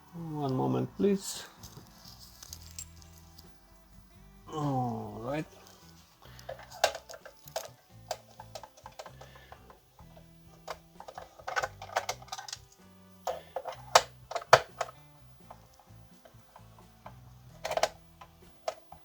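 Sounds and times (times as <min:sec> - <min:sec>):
quiet background music: 0:00.0 - 0:19.0
screwdriver clicks and clatters: 0:06.3 - 0:19.0.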